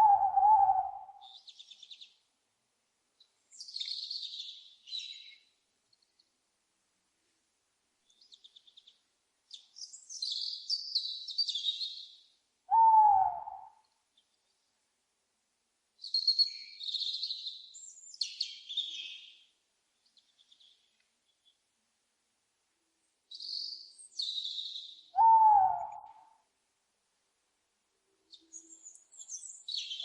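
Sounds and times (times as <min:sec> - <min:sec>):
screechy owl calls: 0:00.0 - 0:01.4, 0:12.7 - 0:13.8, 0:25.1 - 0:26.4.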